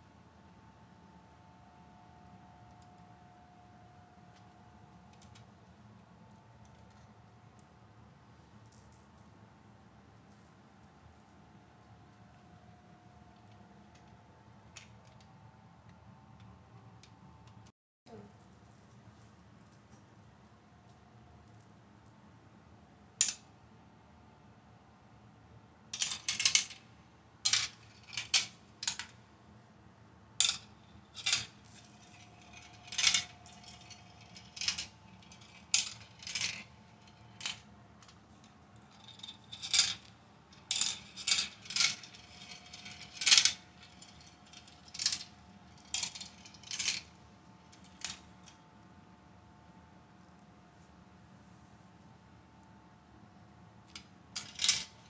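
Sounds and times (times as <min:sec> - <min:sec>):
marbles clacking on plastic: 0:26.0 - 0:26.8, 0:30.4 - 0:38.2, 0:38.9 - 0:47.1.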